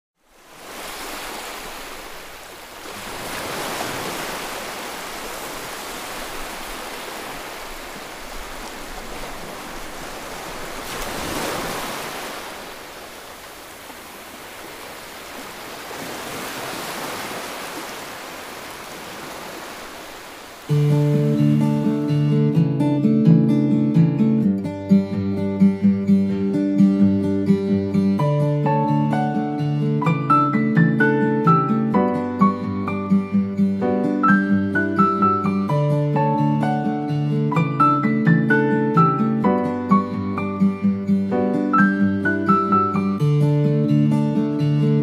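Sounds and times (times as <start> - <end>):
ocean surf breaking: 0.3 - 21.8.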